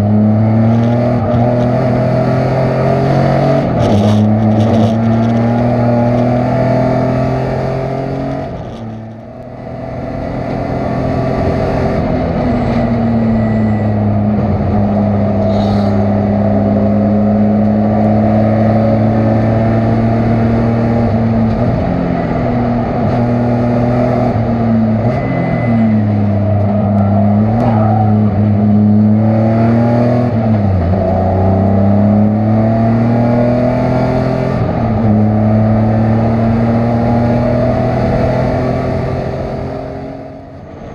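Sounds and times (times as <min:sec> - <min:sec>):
race car engine running hard: 0:00.0 - 0:40.9.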